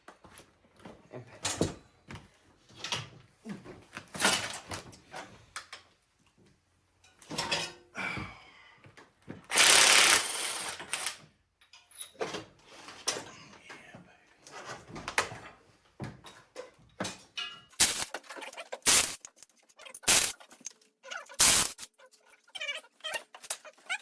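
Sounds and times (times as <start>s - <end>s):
hand tools clinking on metal: 17.2s - 22.0s.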